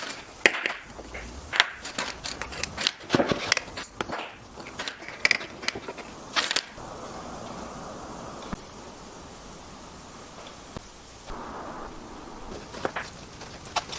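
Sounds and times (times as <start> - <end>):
wooden pieces knocking: 0.0 - 6.8
steady hiss: 0.0 - 13.9.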